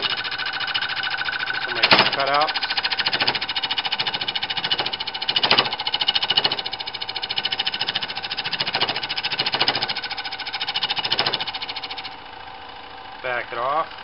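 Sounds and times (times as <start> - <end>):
wood lathe cutting chatter: 0.0 - 14.0
loud knocks: 1.8 - 10.1, 10.8 - 11.6.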